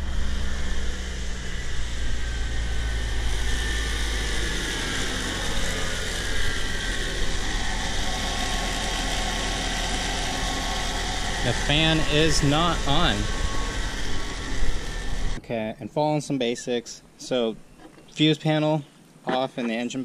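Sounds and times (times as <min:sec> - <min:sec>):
car engine idling: 0:00.0 - 0:15.4.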